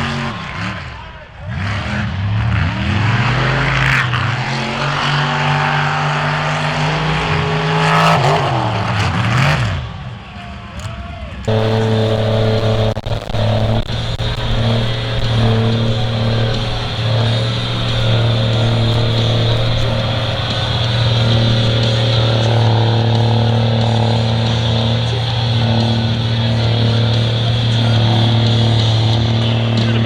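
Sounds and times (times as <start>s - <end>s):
off-road vehicle engine revving: 11.5s - 30.0s.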